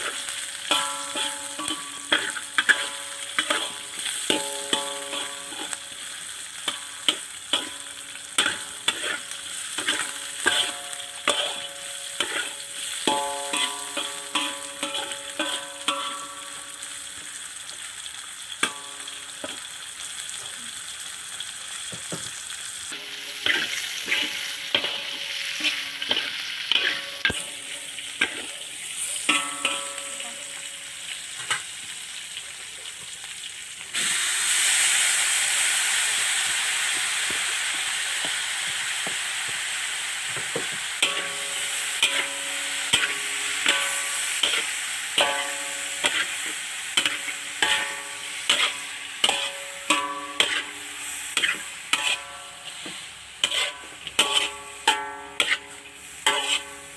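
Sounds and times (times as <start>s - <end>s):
food sizzling in pan: 0.0s - 56.9s
metal spatula knocking on pan: 0.7s - 3.7s, 13.0s - 16.6s, 29.3s - 30.5s, 49.2s - 50.6s, 53.5s - 55.6s.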